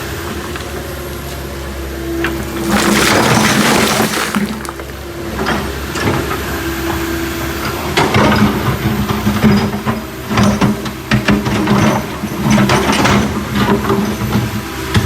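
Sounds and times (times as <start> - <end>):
rock and gravel crunching: 0.0 - 5.3.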